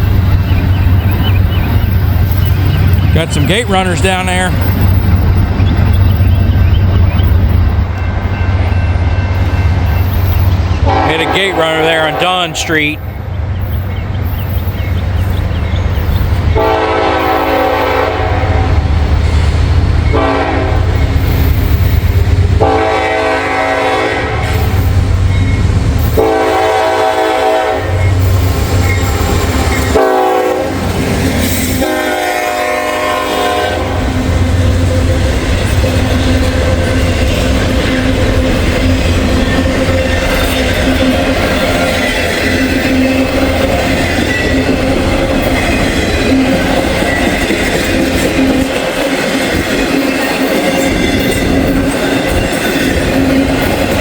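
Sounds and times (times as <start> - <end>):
locomotive engine rumble: 0.0 - 54.0
train cars rolling past: 0.0 - 54.0
locomotive air horn blasts: 10.8 - 12.7, 16.5 - 18.9, 20.1 - 21.0, 22.6 - 24.8, 26.1 - 28.1, 29.9 - 30.8, 31.8 - 34.3
wheel clickety-clack: 35.3 - 54.0.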